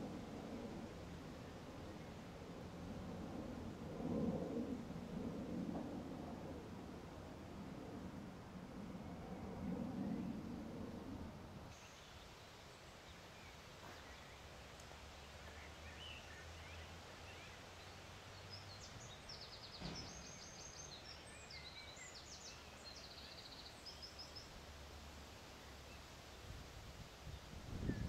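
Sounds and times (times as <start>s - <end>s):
birds singing trills and chirps: 15.4s - 24.5s.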